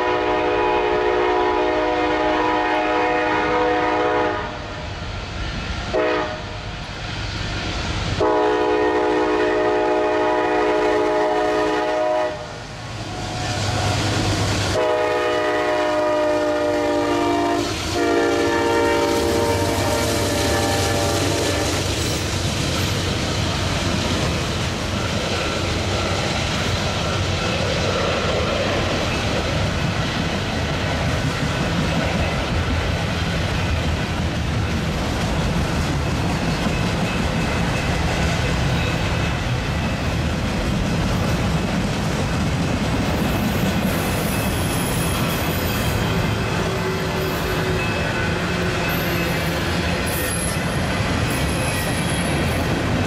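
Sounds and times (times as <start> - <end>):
train cars rumbling on rails: 0.0 - 53.0
faint high wheel squeal: 43.4 - 52.8.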